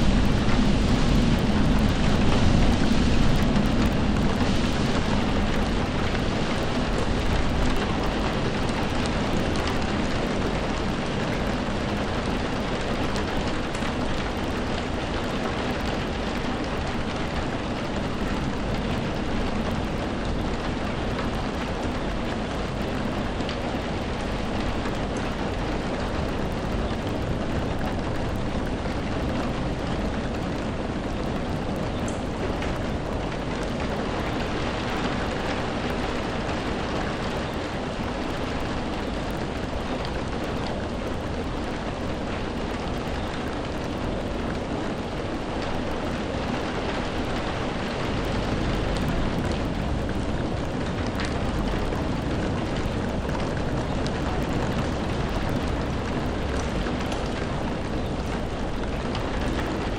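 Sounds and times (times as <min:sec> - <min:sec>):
low rumble: 0:00.0 - 0:22.8
steady rainfall: 0:00.0 - 0:59.9.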